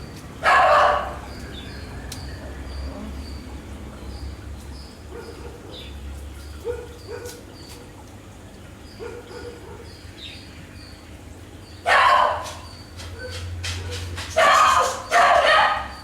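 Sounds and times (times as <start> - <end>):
dog barking: 0.4 - 1.4, 5.1 - 5.9, 6.6 - 7.4, 9.0 - 10.0, 11.8 - 16.0.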